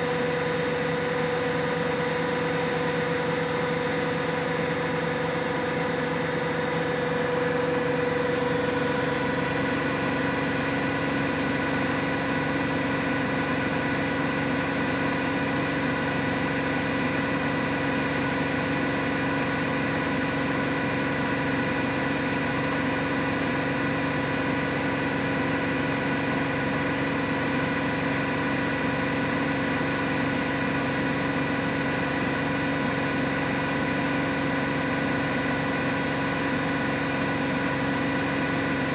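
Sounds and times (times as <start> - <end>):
washing machine spinning: 0.1 - 38.9.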